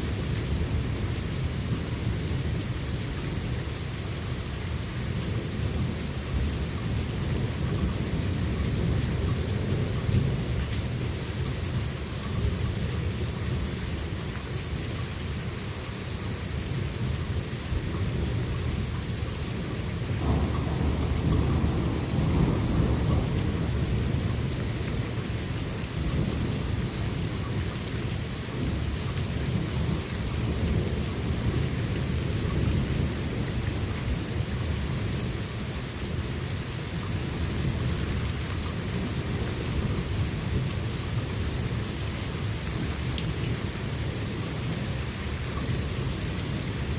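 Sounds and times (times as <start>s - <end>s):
rain hissing: 18.8s - 46.9s
rolling thunder: 20.2s - 27.2s.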